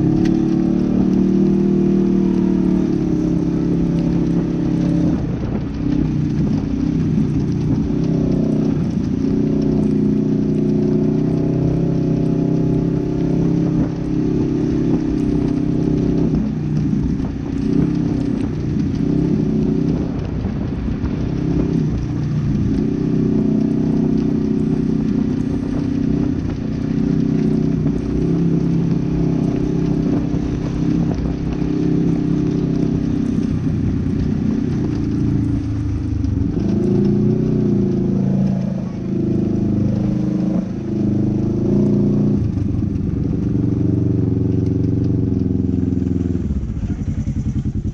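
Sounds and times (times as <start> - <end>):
off-road vehicle engine revving: 17.1 - 47.9.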